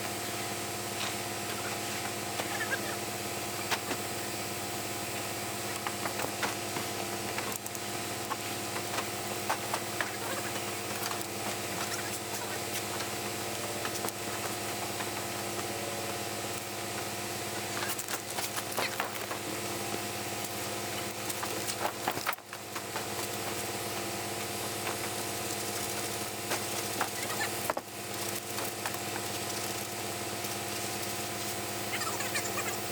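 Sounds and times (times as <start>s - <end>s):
engine running steadily: 0.0s - 32.9s.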